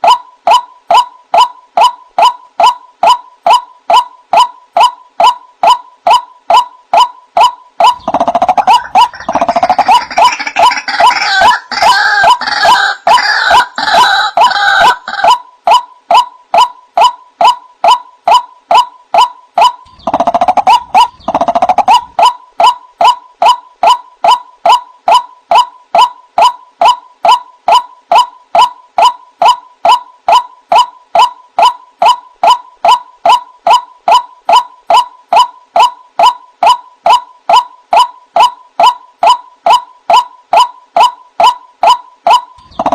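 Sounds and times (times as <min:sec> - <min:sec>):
bird wak calls: 0:05.7 - 0:15.4, 0:18.7 - 0:24.0
harsh chorus of bird calls: 0:07.8 - 0:15.4.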